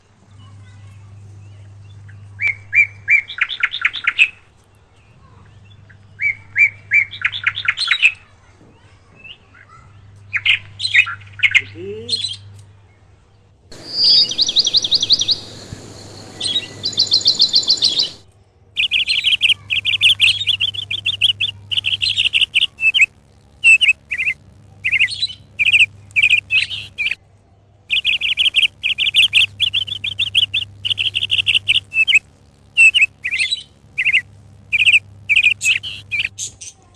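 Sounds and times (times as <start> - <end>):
parakeet trilled chirps: 13.7 - 18.2, 18.8 - 27.2, 27.9 - 36.4.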